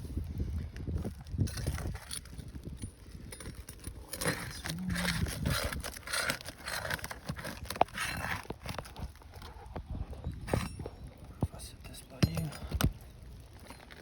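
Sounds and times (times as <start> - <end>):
shingles crackling: 1.2 - 9.8, 10.4 - 14.0
metal bar scraping shingles: 3.3 - 9.1.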